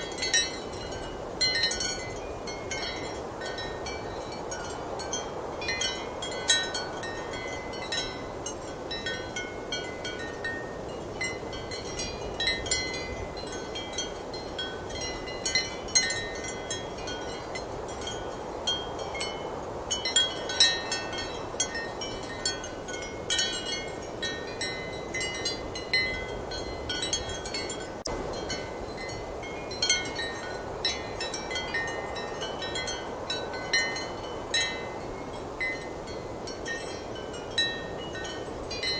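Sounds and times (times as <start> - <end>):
ceramic wind chimes clinking: 0.0 - 38.9.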